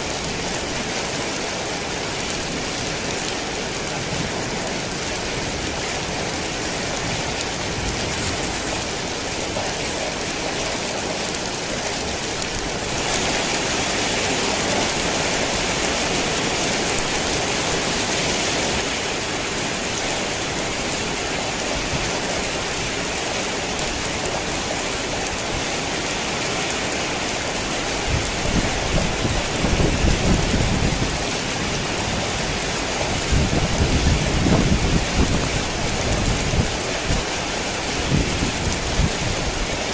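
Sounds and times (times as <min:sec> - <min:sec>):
heavy rain falling: 0:00.0 - 0:39.9
thunder rumbling: 0:28.0 - 0:39.6.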